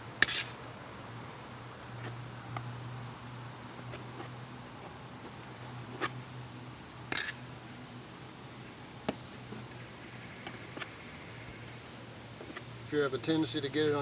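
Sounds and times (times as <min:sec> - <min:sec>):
steady low hum: 0:00.0 - 0:14.0
tool scraping: 0:00.2 - 0:00.6.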